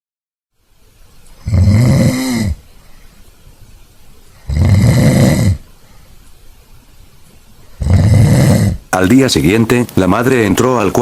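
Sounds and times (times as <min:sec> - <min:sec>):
person snoring loudly: 0:01.4 - 0:02.6, 0:04.4 - 0:05.7, 0:07.8 - 0:08.9.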